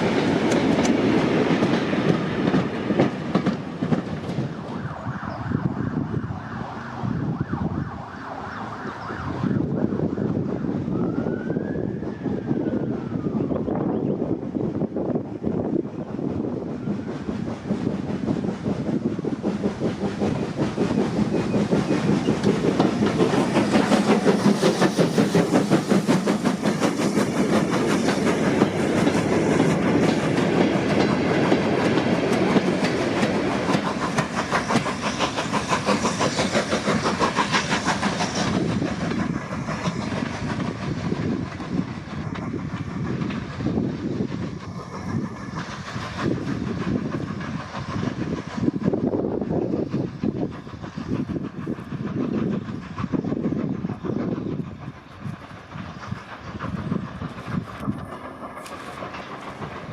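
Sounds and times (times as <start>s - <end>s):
train wheel clatter: 0.0s - 5.8s, 14.2s - 59.9s
steam locomotive exhaust beats: 0.0s - 59.9s.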